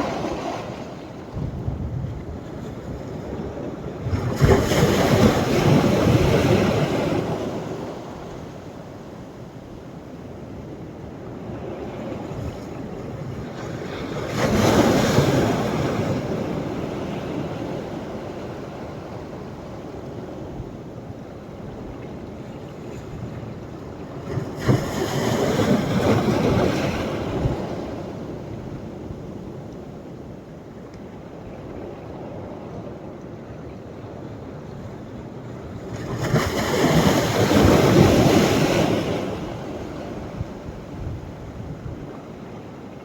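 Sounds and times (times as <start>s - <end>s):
sea waves crashing on beach: 0.0s - 10.2s, 23.9s - 29.2s, 35.2s - 43.0s.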